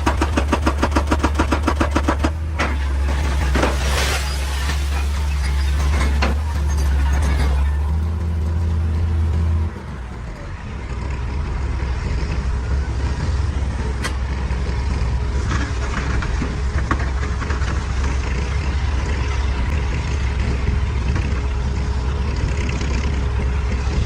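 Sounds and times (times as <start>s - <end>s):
sharp metal clanks and knocks: 0.0s - 8.4s
excavator diesel engine running: 0.0s - 24.0s.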